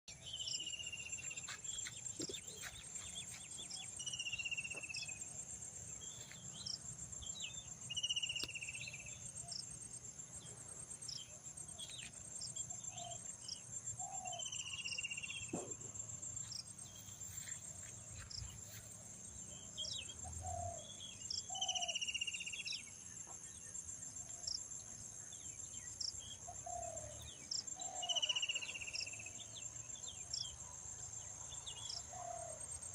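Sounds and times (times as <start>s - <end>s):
insects chorus: 0.1s - 32.9s.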